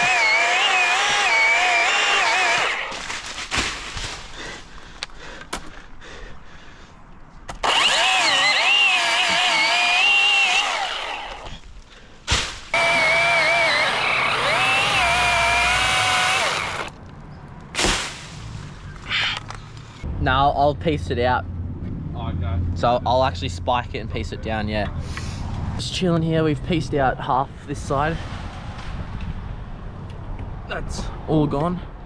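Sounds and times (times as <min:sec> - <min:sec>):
chainsaw cutting wood: 0:00.0 - 0:03.2, 0:07.5 - 0:11.6, 0:12.7 - 0:16.9.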